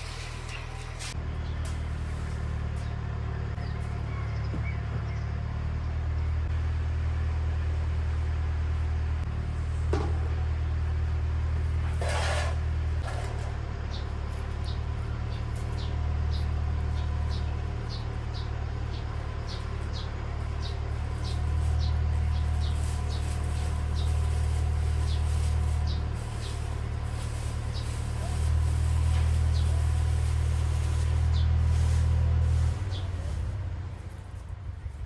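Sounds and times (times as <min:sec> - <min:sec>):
small bird chirping: 0:13.9 - 0:26.7.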